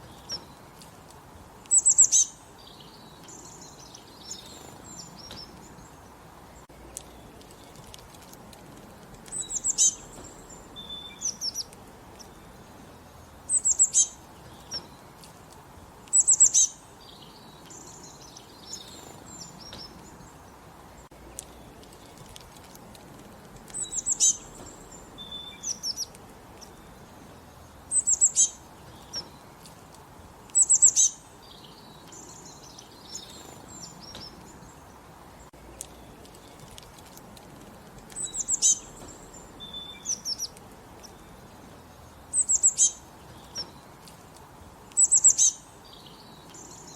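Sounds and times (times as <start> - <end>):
soft bird calls: 0.0 - 46.9
steady background hiss: 0.0 - 46.9
bird chirping high-pitched: 1.7 - 5.7, 9.2 - 12.6, 13.5 - 14.9, 16.1 - 20.0, 23.7 - 29.4, 30.5 - 34.4, 38.1 - 43.8, 44.9 - 46.9.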